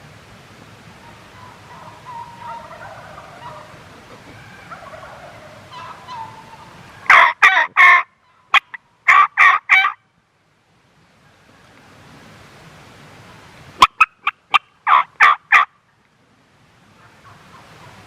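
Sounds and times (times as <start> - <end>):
turkeys gobbling: 1.0 - 10.0, 13.8 - 15.8, 17.0 - 18.0.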